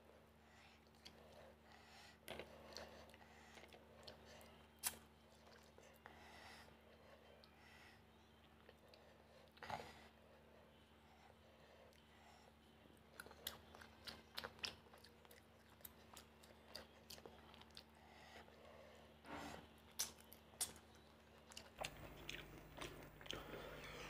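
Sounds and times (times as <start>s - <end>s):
wet chewing with clicks and smacks: 0.8s - 1.4s, 2.2s - 6.1s, 13.0s - 18.7s, 19.9s - 23.6s.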